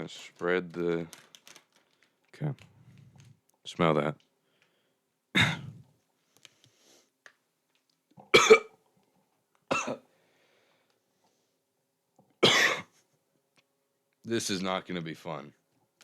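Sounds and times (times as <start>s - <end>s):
person coughing: 5.3s - 5.8s, 8.3s - 8.7s, 9.7s - 10.0s, 12.4s - 12.9s.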